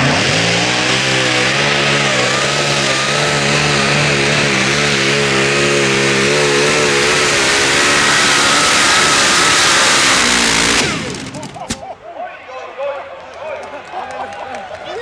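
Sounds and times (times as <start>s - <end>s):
tractor engine running loud: 0.0s - 11.9s.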